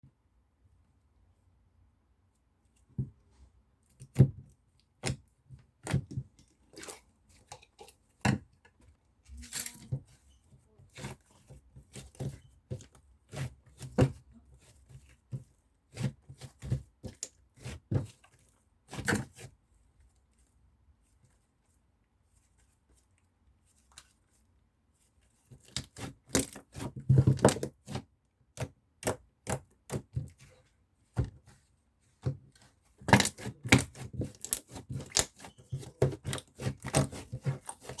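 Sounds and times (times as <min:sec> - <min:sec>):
hands squishing slime: 0:32.1 - 0:38.0.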